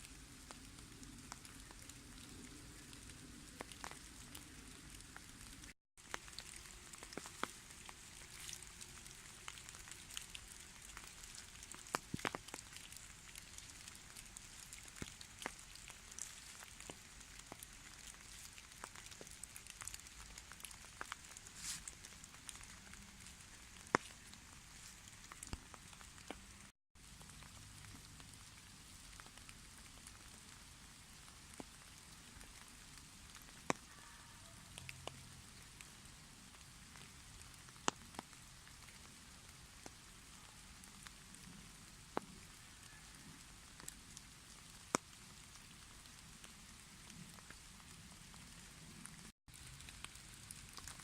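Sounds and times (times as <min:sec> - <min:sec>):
rain hissing: 0:00.0 - 0:33.5.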